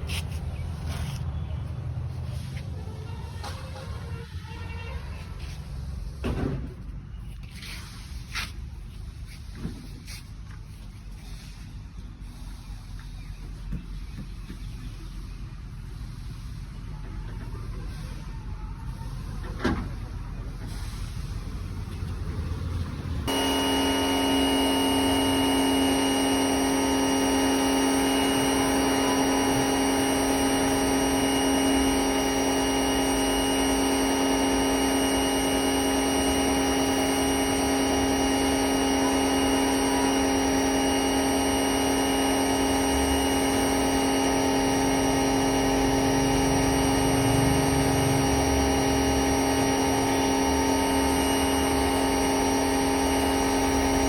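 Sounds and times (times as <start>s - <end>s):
electric pressure washer running: 22.8s - 54.0s.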